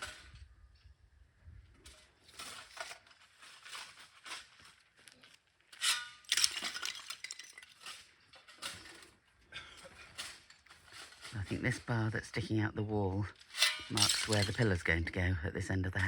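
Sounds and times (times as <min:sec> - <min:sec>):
stones scraping and clinking: 0:01.8 - 0:12.2.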